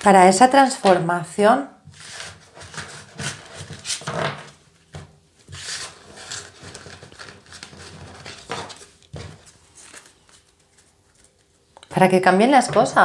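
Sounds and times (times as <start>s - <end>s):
cards rustling: 5.6s - 11.9s.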